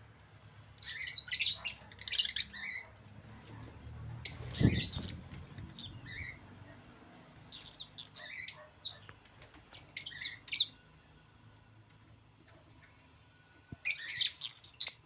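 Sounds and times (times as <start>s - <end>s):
lovebirds chirping and squawking: 0.6s - 11.0s, 13.7s - 15.0s.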